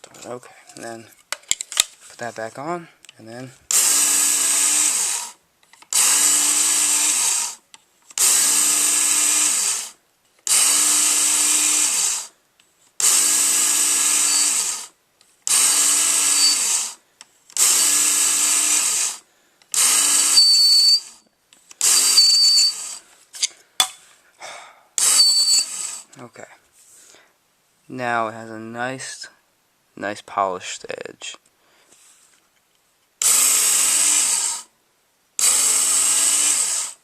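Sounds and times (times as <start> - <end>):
electric belt knife sharpener: 3.7 - 7.6, 8.2 - 12.4, 13.0 - 17.0, 17.6 - 21.2, 21.8 - 23.0, 25.0 - 26.1, 33.2 - 34.7, 35.4 - 37.0
thin high whine: 16.2 - 16.7, 20.1 - 21.3, 21.9 - 23.0, 25.0 - 25.8.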